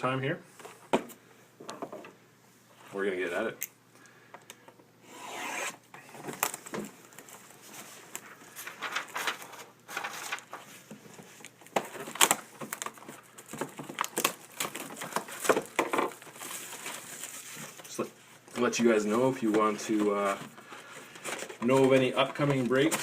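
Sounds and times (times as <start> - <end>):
plastic crinkling and clicking: 6.2 - 23.0
plastic shrink-wrap ripping: 11.6 - 18.0.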